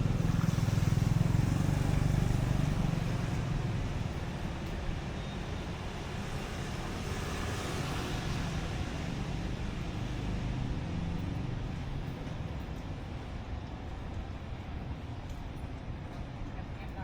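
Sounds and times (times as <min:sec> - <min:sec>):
traffic on wet road: 0:00.0 - 0:12.8.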